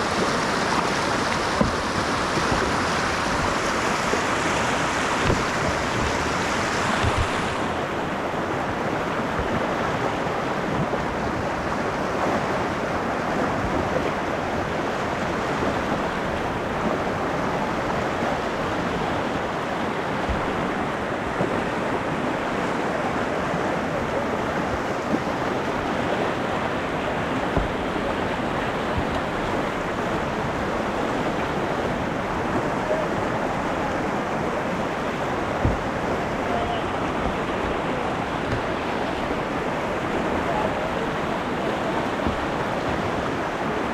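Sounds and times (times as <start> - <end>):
river water rushing: 0.0 - 43.9
soft thumps against microphone: 1.4 - 3.7, 5.1 - 7.7, 20.2 - 20.7, 27.4 - 29.8, 35.4 - 40.3, 42.2 - 43.0.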